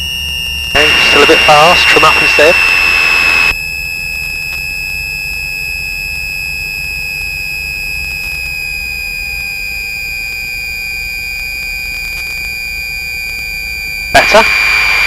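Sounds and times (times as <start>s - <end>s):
high-pitched whine: 0.0s - 3.6s, 14.0s - 15.0s
aircraft piston engines droning: 0.8s - 3.6s.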